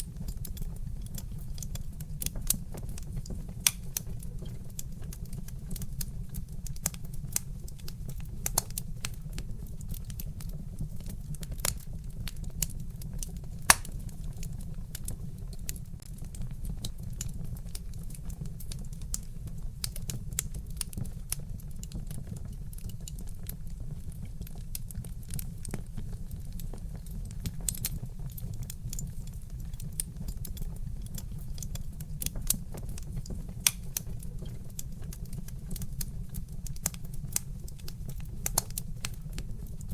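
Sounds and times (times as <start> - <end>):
wood fire crackling: 0.0 - 39.9
logs popping: 26.7 - 39.2.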